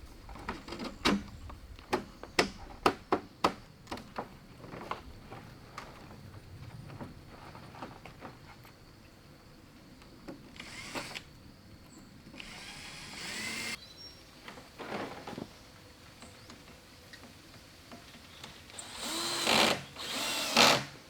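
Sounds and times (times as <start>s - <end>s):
power tool motor whine: 10.6s - 11.3s, 12.4s - 13.8s, 18.8s - 20.9s.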